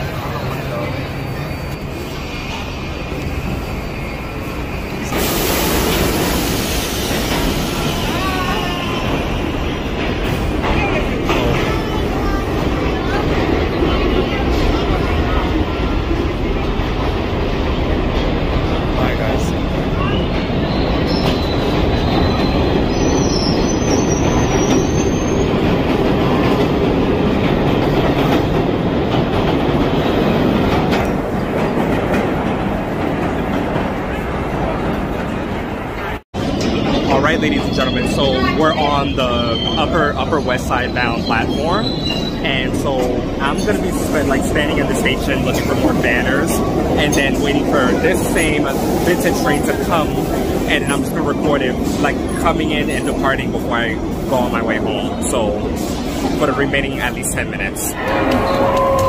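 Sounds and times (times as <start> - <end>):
subway train rumbling on track: 0.0 - 59.0
high wheel squeal: 20.0 - 25.6, 37.0 - 42.7.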